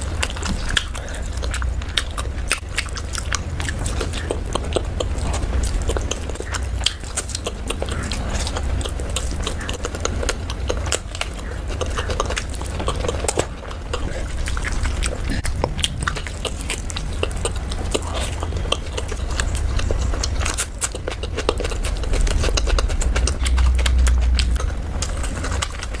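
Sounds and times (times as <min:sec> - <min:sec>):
chewing food: 0:00.0 - 0:26.0
steady low rumble: 0:00.0 - 0:26.0.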